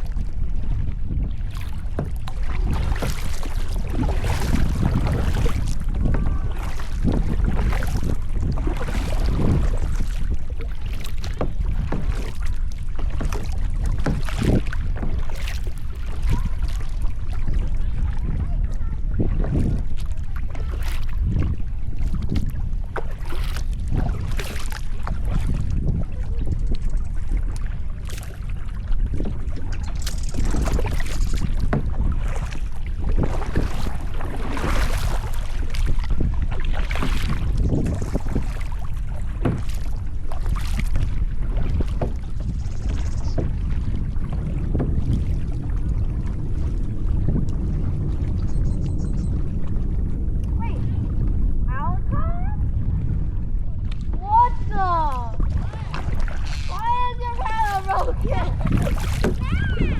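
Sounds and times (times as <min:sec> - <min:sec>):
paddle strokes splashing: 0:00.0 - 0:59.9
water lapping around kayak: 0:00.0 - 0:59.9
wind buffeting microphone: 0:00.0 - 0:59.9
loud water splash: 0:33.2 - 0:36.0, 0:54.2 - 0:59.9.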